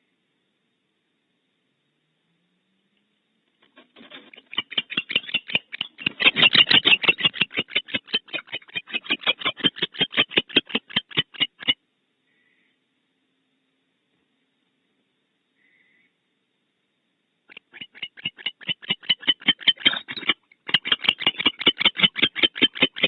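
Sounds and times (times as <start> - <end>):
barn owl chittering: 3.8 - 11.8, 17.5 - 23.0.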